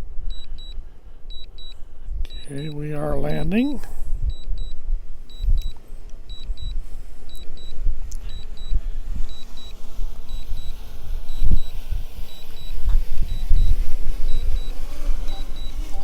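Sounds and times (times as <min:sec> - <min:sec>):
remote controller double beeps: 0:00.3 - 0:16.0
wind buffeting microphone: 0:03.5 - 0:16.0.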